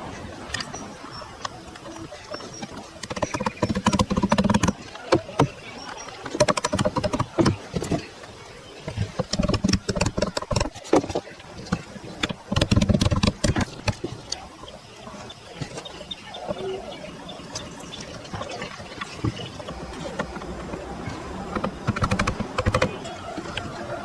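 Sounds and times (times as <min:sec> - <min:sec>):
sharp knocks and clicks: 0:01.4 - 0:08.1, 0:08.8 - 0:14.5, 0:17.6 - 0:23.7.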